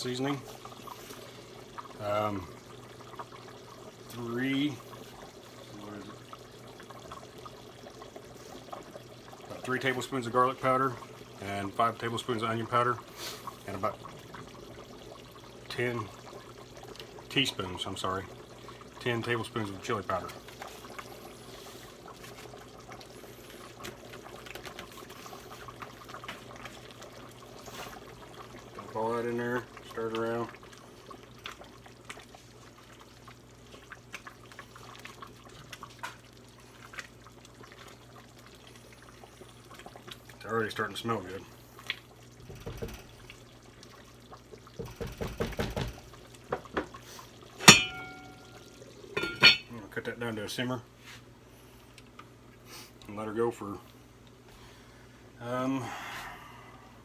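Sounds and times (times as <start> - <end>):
sauce bubbling and popping: 0.0 - 49.7, 51.8 - 53.1
spoon knocking against pot: 44.8 - 46.6, 47.6 - 48.4
low steady hum: 45.8 - 57.0.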